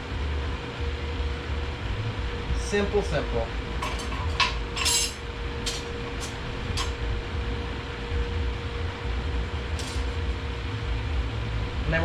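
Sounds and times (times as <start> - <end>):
faint steady whine: 0.0 - 12.0
low shop hum: 0.0 - 12.0.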